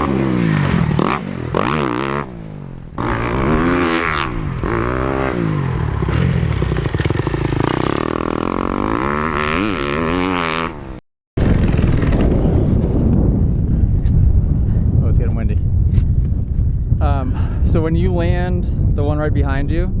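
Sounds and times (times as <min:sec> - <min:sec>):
dirt bike engine revving: 0:00.0 - 0:13.4
wind on microphone: 0:11.4 - 0:20.0.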